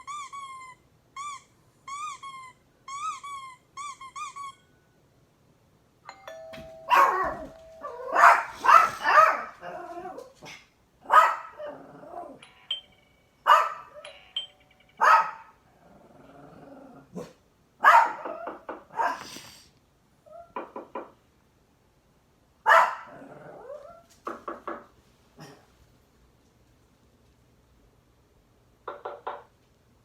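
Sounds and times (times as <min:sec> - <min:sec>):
doorbell ding-dong: 0:06.1 - 0:08.4, 0:12.4 - 0:13.4, 0:14.0 - 0:15.0
dogs barking: 0:06.9 - 0:09.7, 0:11.0 - 0:11.7, 0:13.5 - 0:14.0, 0:15.0 - 0:15.5, 0:17.2 - 0:19.2, 0:22.7 - 0:23.1.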